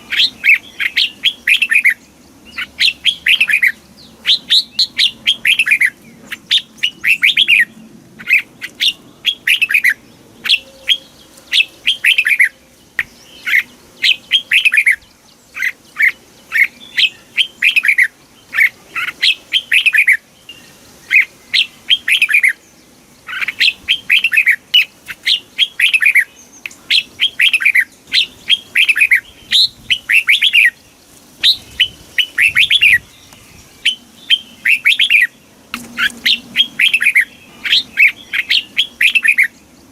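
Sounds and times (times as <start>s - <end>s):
bulbul singing whistled notes: 23.3s - 30.8s, 31.4s - 39.6s.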